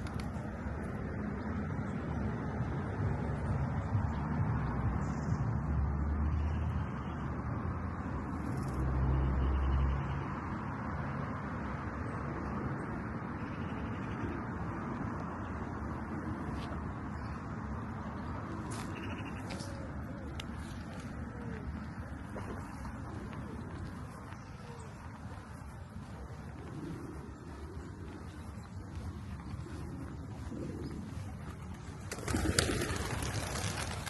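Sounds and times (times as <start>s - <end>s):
distant traffic: 0.0s - 34.0s
pigeon cooing: 18.7s - 33.7s.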